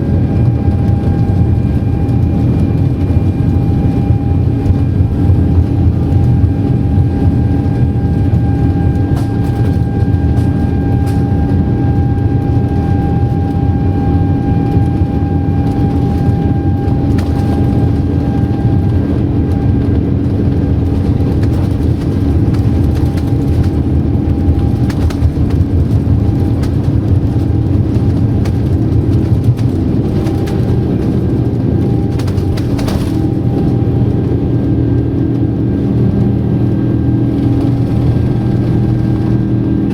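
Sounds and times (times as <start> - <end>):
jet engine rumble in cabin: 0.0 - 39.9.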